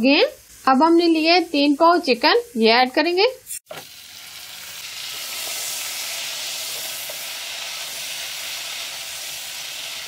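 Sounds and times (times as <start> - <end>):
chicken sizzling in hot fat: 3.6 - 10.0.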